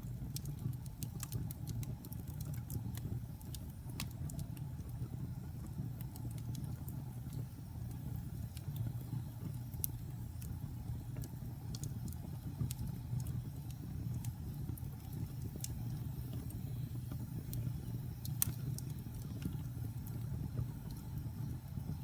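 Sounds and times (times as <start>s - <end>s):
fire crackles and pops: 0.0s - 22.0s
low rumble of flames: 0.0s - 22.0s.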